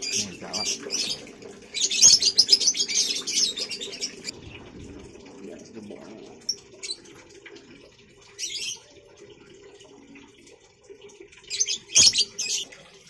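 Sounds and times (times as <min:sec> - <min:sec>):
birds chirping shrilly: 0:00.0 - 0:04.3, 0:11.5 - 0:12.8.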